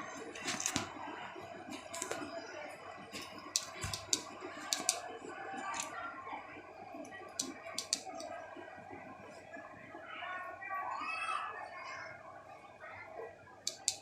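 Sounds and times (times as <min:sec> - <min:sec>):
sharp clicks and taps: 0:03.2 - 0:05.0, 0:07.4 - 0:08.3, 0:13.7 - 0:14.0.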